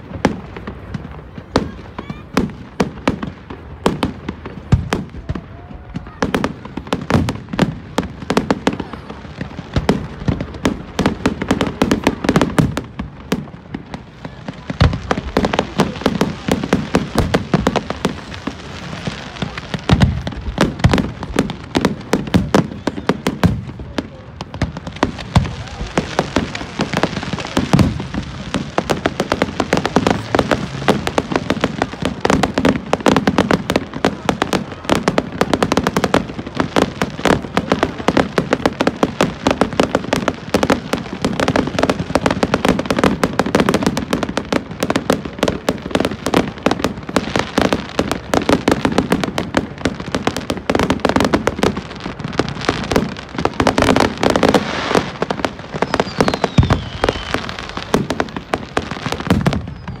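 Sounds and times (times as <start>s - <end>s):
fireworks bangs and crackles: 0.0s - 60.0s
falling firework whistles: 22.5s - 23.5s, 54.4s - 60.0s.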